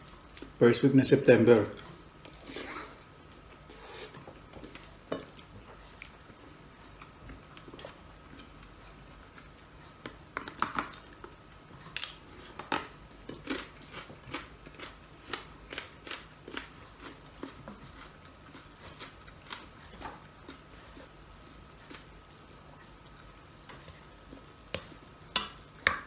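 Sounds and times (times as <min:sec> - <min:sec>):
person crunching food: 0:13.2 - 0:21.0.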